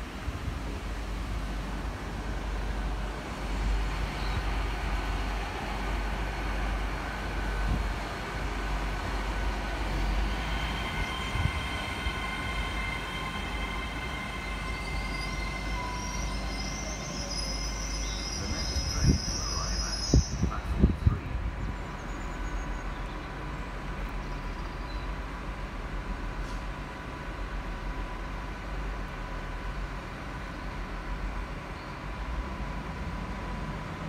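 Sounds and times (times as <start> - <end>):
train wheels rumbling on rails: 0.0 - 34.0
high steady squeal: 9.1 - 20.6
higher-pitched squeal: 10.0 - 20.6.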